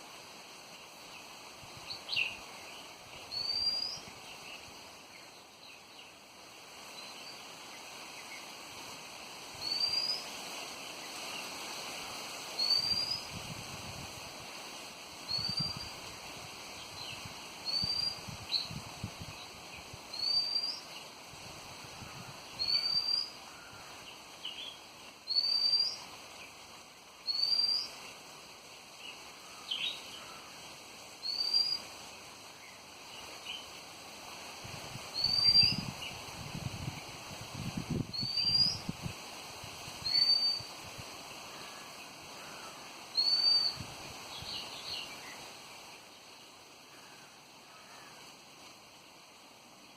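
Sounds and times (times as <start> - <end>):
soft bird chirps: 1.2 - 6.2, 9.6 - 11.6, 16.8 - 18.8, 20.2 - 21.1, 22.6 - 26.6, 27.2 - 28.2, 31.2 - 33.7, 35.2 - 36.2, 38.2 - 38.8, 40.0 - 40.7, 41.3 - 46.4
wind rumbling on microphone: 11.3 - 24.7, 34.3 - 45.4.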